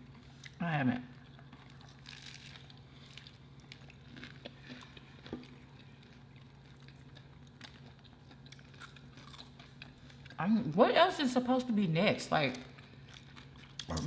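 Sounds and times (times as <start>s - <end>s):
faint chewing and crunching: 0.0s - 10.5s, 12.4s - 14.0s
low steady hum: 0.0s - 14.0s.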